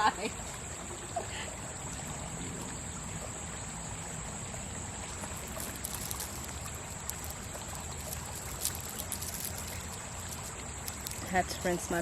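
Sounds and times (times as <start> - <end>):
stream babbling: 0.0 - 12.0.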